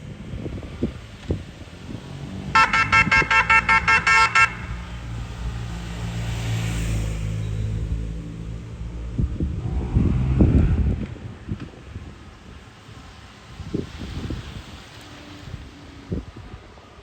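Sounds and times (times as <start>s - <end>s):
low engine rumble: 0.0s - 16.8s
horn tooting: 2.5s - 5.2s.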